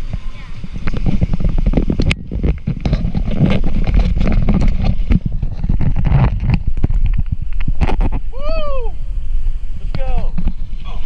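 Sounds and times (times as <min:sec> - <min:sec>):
rushing water: 0:00.0 - 0:11.0
wind buffeting microphone: 0:00.0 - 0:11.0.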